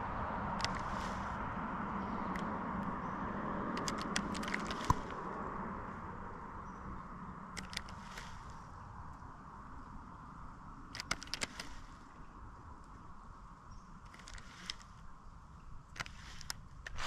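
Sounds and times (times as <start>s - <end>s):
sharp clicks and taps: 3.7s - 5.2s, 7.6s - 8.3s, 10.9s - 11.7s.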